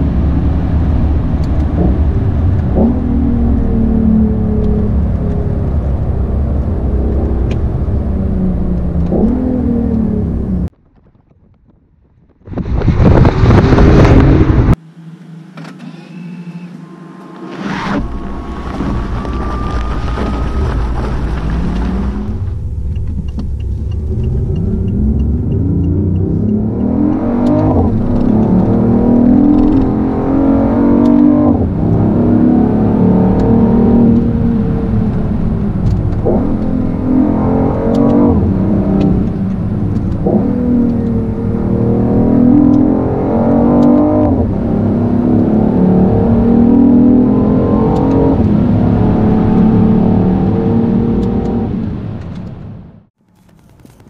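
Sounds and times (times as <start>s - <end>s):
car engine accelerating: 0.0s - 10.7s, 13.2s - 53.2s.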